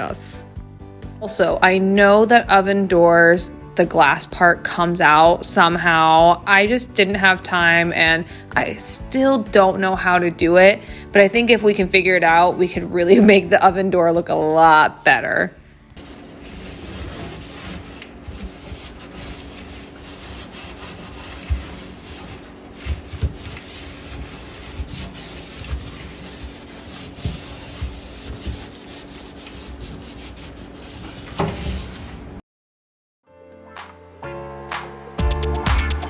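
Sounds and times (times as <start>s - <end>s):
cloth scrubbing hard surface: 16.0s - 32.3s.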